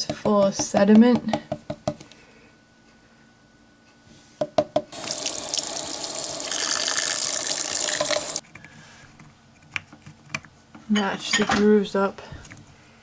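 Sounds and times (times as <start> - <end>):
kitchen faucet running: 4.9 - 8.4.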